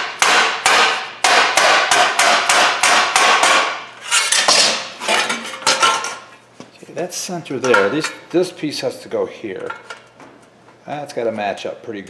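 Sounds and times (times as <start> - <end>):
hammer pounding sheet metal: 0.0 - 5.3.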